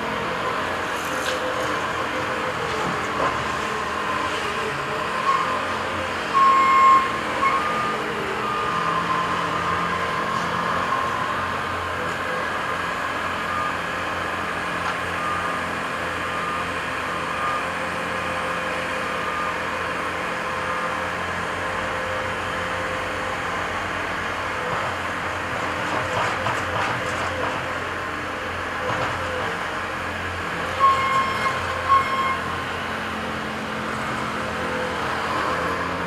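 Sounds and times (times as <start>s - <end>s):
heavy construction machines running: 0.0s - 36.0s.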